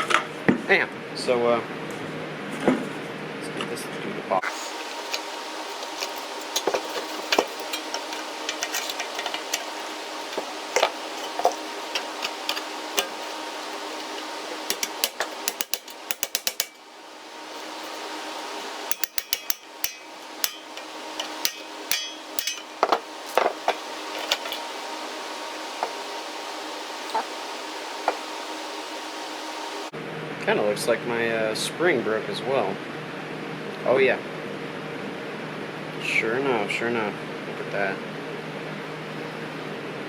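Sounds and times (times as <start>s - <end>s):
rapid clicking: 4.5s - 16.9s, 18.6s - 24.7s
metal clicks and knocks: 5.1s - 16.8s, 18.9s - 24.6s.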